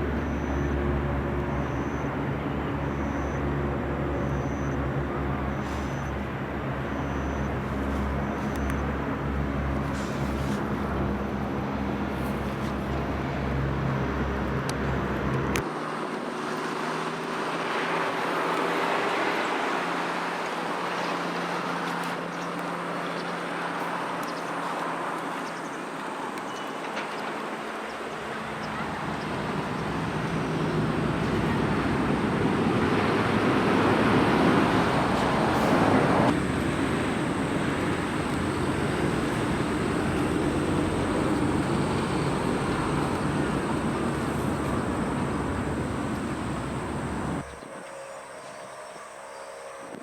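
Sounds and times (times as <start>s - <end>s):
vehicles passing: 0.0s - 48.2s
low engine hum: 27.9s - 47.6s.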